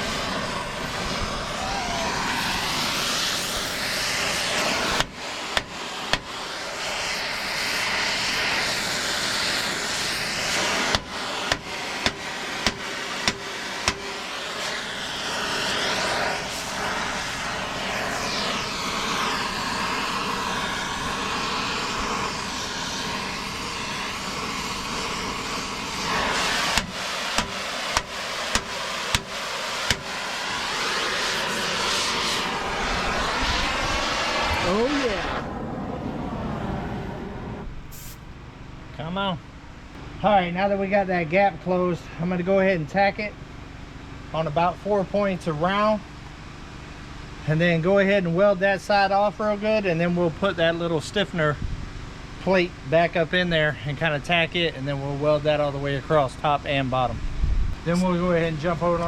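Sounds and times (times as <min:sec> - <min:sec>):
hammer blows on steel: 0:10.5 - 0:14.8, 0:26.0 - 0:30.3.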